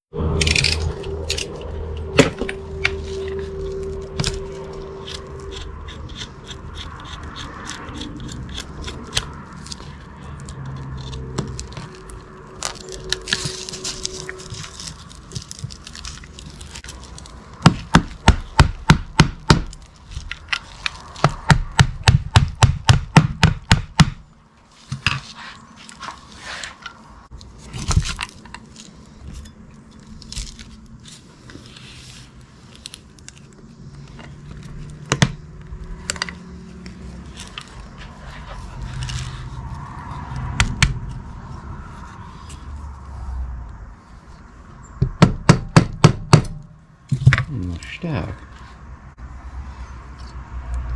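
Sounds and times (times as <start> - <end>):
sharp knocks on metal: 17.6 - 19.8, 21.2 - 24.2, 45.0 - 47.5
clatter of parts handled: 24.7 - 40.2.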